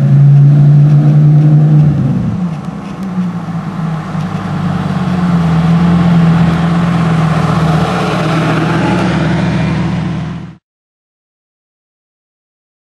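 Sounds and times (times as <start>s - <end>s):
sports car engine driving by: 0.0s - 10.6s.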